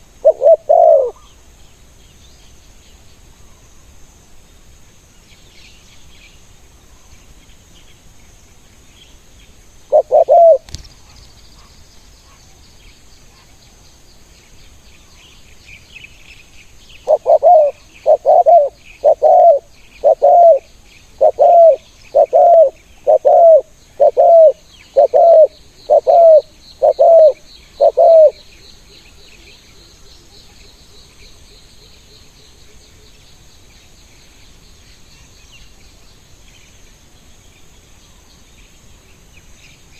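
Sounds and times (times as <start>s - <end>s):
dove cooing: 0.0s - 1.3s, 9.9s - 10.8s, 17.0s - 28.4s
insects buzzing faintly: 0.0s - 39.9s.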